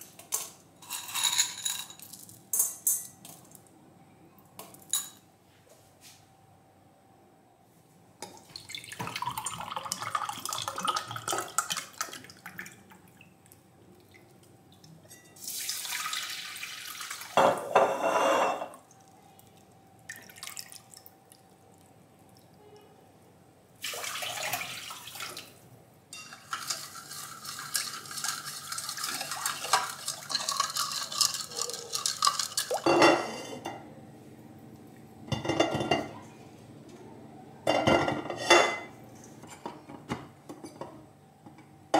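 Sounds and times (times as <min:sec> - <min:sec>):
dishes and utensils clinking: 0:00.0 - 0:03.5, 0:15.0 - 0:15.4, 0:17.4 - 0:18.8, 0:26.1 - 0:33.8, 0:35.3 - 0:36.2, 0:37.6 - 0:41.0
water running: 0:08.4 - 0:17.7, 0:23.8 - 0:33.0.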